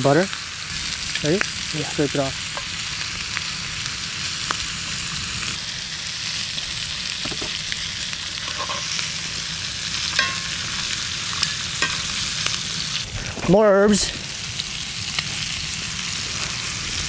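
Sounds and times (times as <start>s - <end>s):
butter and lobster sizzling: 0.0s - 17.0s
metal tongs tapping a pan: 8.4s - 8.9s, 10.1s - 10.6s, 11.4s - 12.1s.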